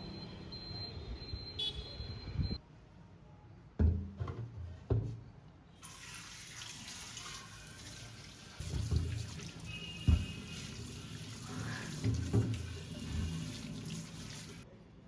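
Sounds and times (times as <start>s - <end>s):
kitchen tap running: 5.8s - 14.6s.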